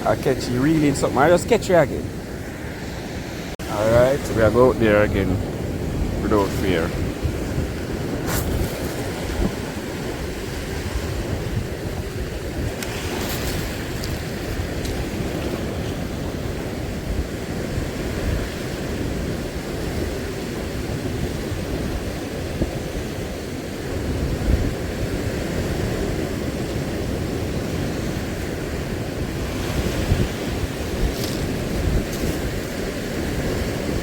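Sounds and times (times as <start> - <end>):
sea surf washing ashore: 0.0 - 34.0
wind buffeting microphone: 0.0 - 34.0.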